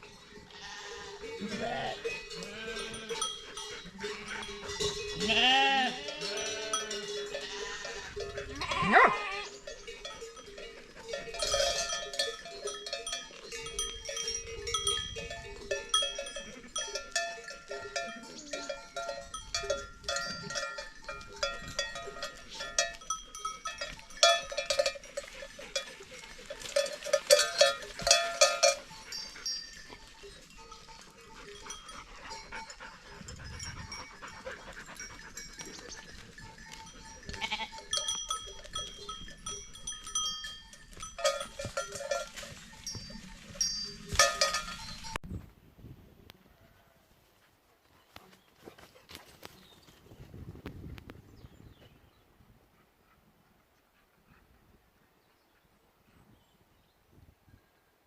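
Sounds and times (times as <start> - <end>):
livestock bells clanking: 0.0 - 45.2.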